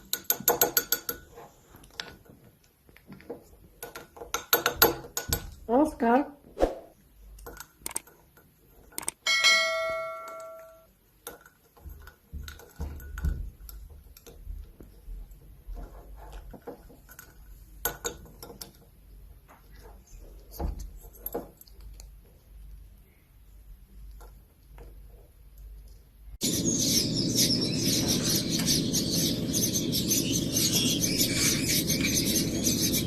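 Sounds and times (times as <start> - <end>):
small bell ringing: 9.2 - 10.9.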